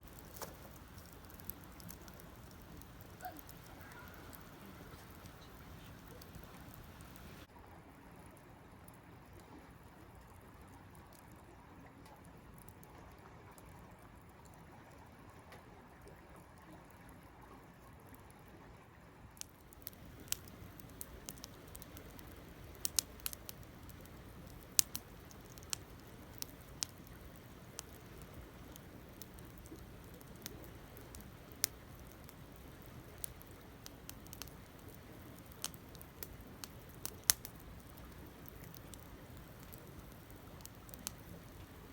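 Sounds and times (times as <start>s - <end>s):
campfire flame rushing: 0.0s - 7.5s, 19.6s - 41.9s
fire crackling and popping: 0.0s - 7.5s, 19.4s - 41.9s.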